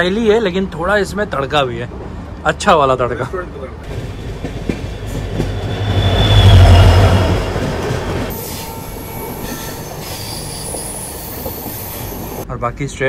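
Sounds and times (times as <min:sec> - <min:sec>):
diesel locomotive engine rumble: 0:00.0 - 0:12.6
train rolling noise: 0:00.4 - 0:12.4
train wheel squeal: 0:04.0 - 0:12.4.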